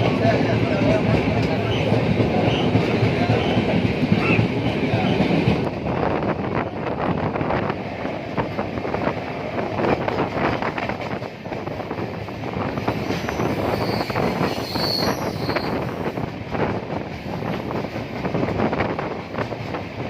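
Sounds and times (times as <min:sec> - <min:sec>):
train wheels rumbling on rails: 0:00.0 - 0:20.0
high squeal: 0:13.0 - 0:15.9.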